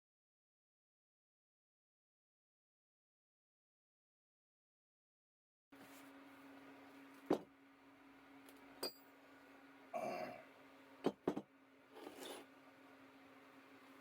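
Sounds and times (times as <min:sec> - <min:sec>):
steady low hum: 0:05.8 - 0:14.0.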